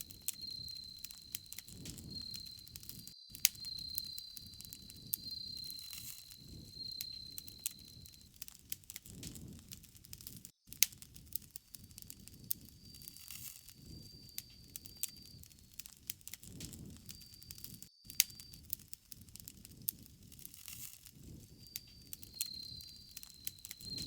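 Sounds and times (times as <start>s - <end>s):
high insect trill: 0.0s - 8.3s, 11.8s - 15.8s, 21.4s - 24.0s
rush of flames: 0.0s - 10.5s
bonfire crackling and popping: 0.0s - 24.0s.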